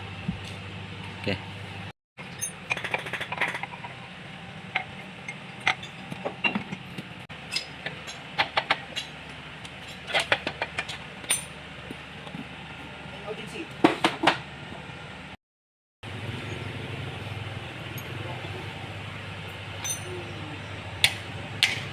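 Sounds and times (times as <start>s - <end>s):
metallic clinks of tools: 19.8s - 20.2s.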